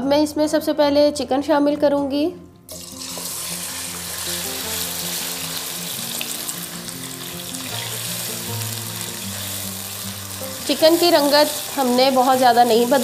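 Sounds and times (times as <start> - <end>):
chicken sizzling in hot oil: 2.8 - 13.0.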